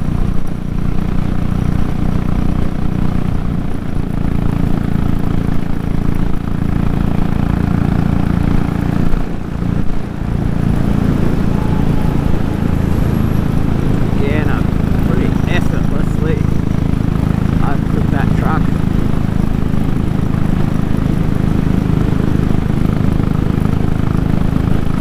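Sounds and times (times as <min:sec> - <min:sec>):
motorcycle engine running under load: 0:00.0 - 0:25.0
wind rushing: 0:08.3 - 0:15.6.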